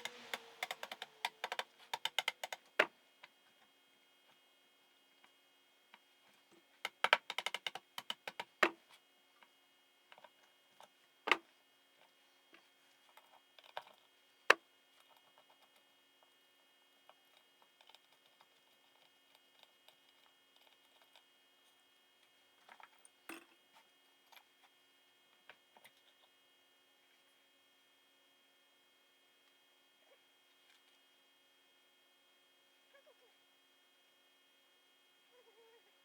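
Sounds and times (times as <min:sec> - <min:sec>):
tool clicks: 0:00.0 - 0:02.6.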